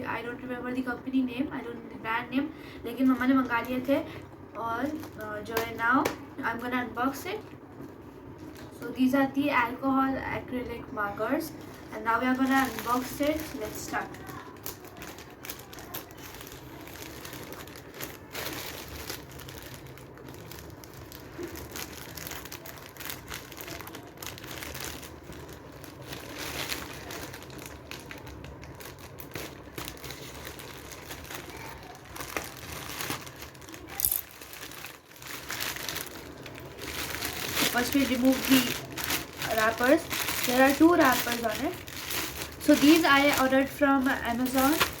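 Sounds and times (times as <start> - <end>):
packaging wrapper crinkling: 12.0 - 45.0.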